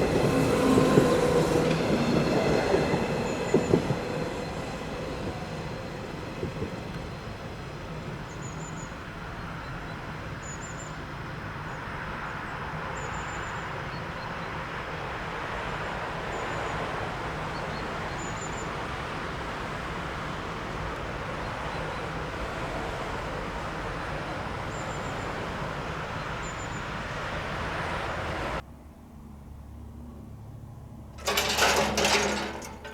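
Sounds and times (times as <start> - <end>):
train rolling rumble: 0.0 - 9.7, 31.0 - 32.9
faint high squeaks: 31.2 - 32.9.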